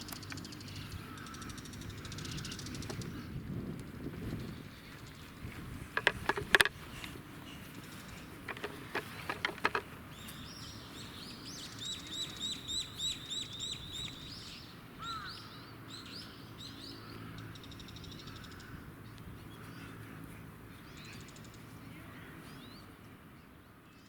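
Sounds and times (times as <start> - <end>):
birds singing: 0.0 - 3.4, 4.2 - 24.0
sharp clicks and rattles: 5.9 - 10.0
bird trill: 10.1 - 18.7.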